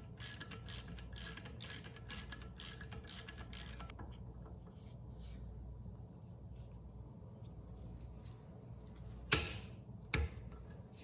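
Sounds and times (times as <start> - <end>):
ratchet wrench clicking: 0.0 - 3.9.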